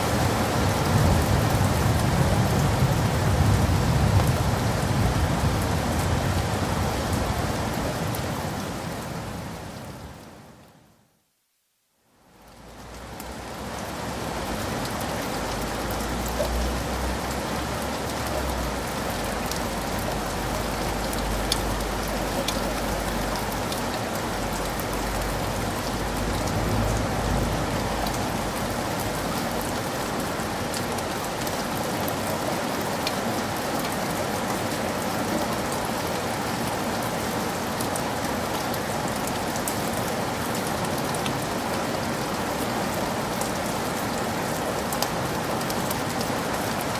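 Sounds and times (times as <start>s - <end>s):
heavy rain falling: 0.0s - 10.8s, 12.2s - 46.9s
raindrops ticking close by: 12.2s - 46.9s.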